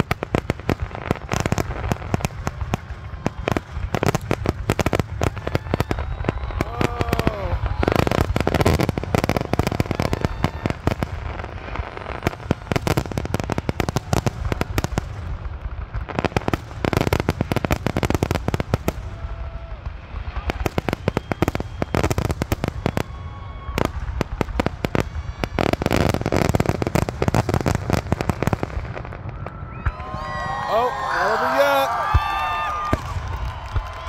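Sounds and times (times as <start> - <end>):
fireworks bursting and crackling: 0.0 - 34.0.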